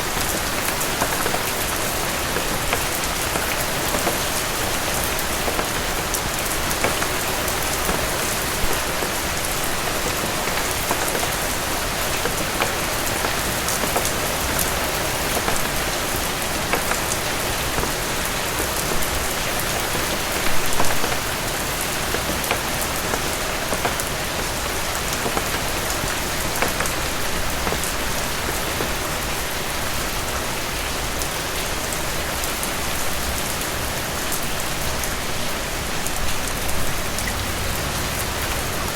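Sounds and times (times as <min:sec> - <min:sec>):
raindrops ticking: 0:00.0 - 0:30.4
heavy rain on a roof: 0:00.0 - 0:38.9.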